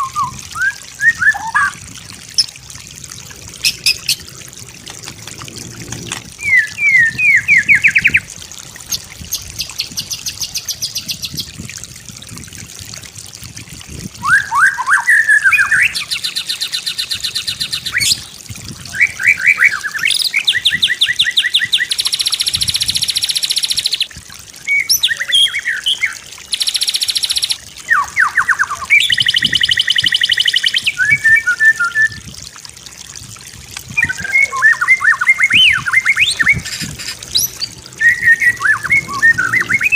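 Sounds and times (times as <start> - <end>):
bird singing varied song: 6.4 - 8.3, 24.7 - 32.2, 34.0 - 39.9.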